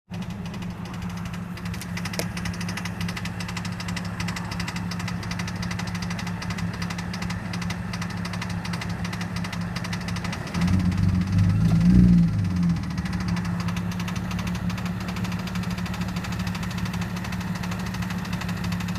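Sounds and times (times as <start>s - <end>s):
car engine idling: 0.1s - 18.9s.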